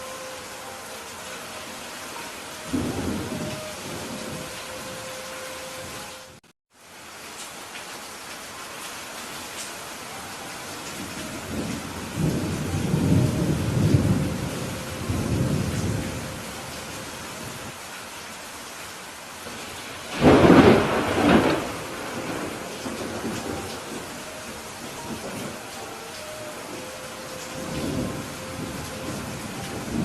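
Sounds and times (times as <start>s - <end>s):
steady rain: 0.0s - 30.0s
rolling thunder rumble: 11.2s - 16.6s, 20.1s - 25.6s, 27.5s - 30.0s
sharp thunderclap: 20.1s - 23.4s.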